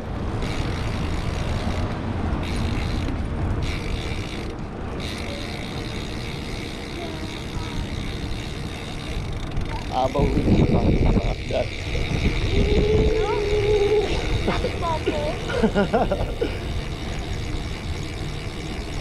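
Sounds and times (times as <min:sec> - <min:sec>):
bicycle tyre road noise: 0:00.0 - 0:19.0
wind on microphone: 0:09.6 - 0:14.8.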